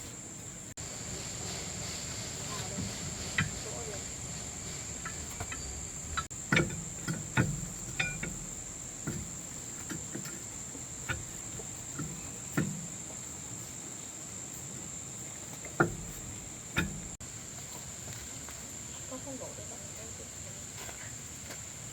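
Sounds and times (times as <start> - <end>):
insects chirring: 0.0 - 21.9
light knocks and clinks: 5.0 - 13.7, 14.6 - 17.2.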